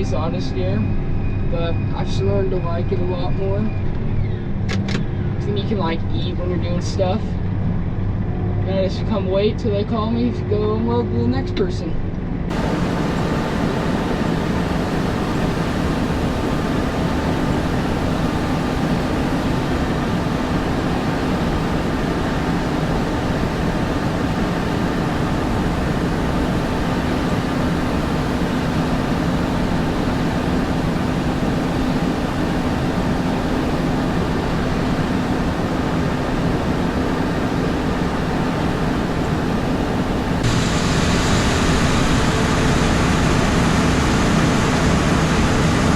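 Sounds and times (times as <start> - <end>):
tractor engine drone: 12.3 - 45.9.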